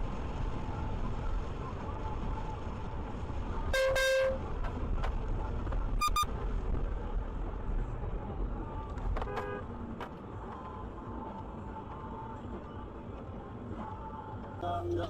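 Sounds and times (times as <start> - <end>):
road noise: 0.0 - 15.0
car horns honking: 3.7 - 4.5, 6.0 - 6.3, 9.2 - 9.7.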